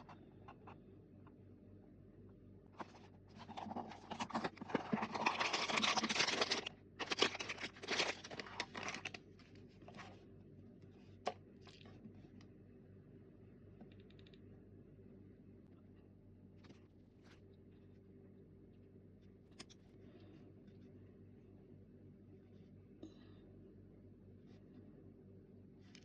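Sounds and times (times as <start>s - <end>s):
packaging crinkling: 2.8s - 9.2s
packaging tearing and rustling: 2.8s - 9.2s.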